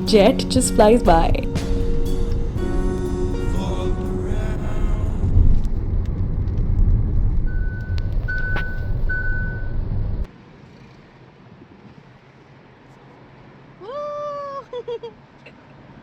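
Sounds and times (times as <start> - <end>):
car road noise rumble: 0.0 - 10.5.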